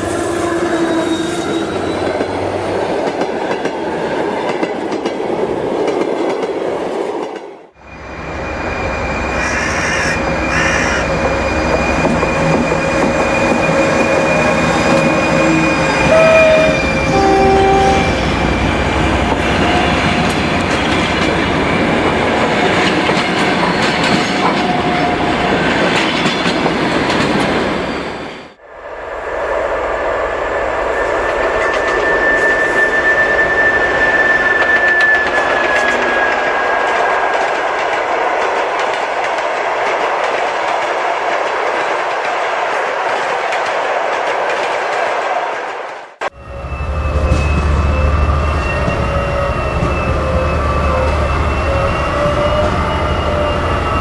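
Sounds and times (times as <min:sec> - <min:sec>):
diesel locomotive engine: 0:07.6 - 0:44.1, 0:46.2 - 0:54.0
high whistling tone: 0:11.3 - 0:18.5, 0:30.8 - 0:37.1, 0:46.3 - 0:54.0.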